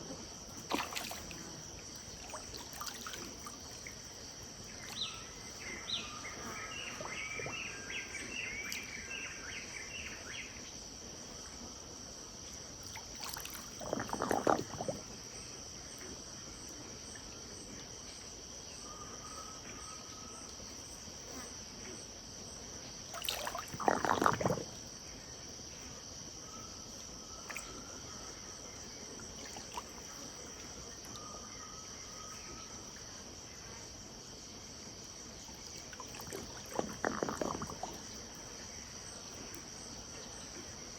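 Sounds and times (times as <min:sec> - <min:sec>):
river water splashing: 0:00.0 - 0:09.2, 0:12.8 - 0:15.0, 0:23.1 - 0:24.8, 0:29.0 - 0:31.3, 0:35.3 - 0:39.8
insect chorus: 0:00.0 - 0:40.9.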